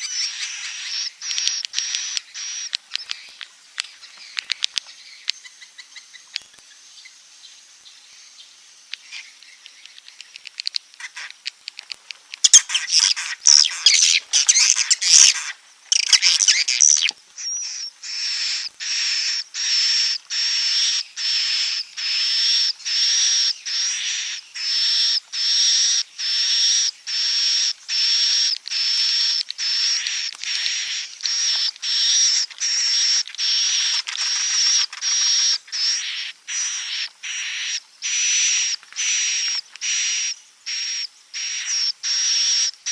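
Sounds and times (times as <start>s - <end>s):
birds twittering chatter: 0.0s - 42.9s.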